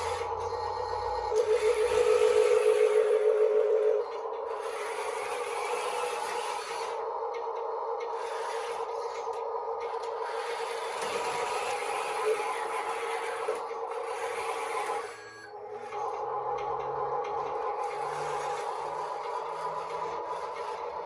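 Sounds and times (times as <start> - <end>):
hydraulic pump whine: 0.0 - 21.0.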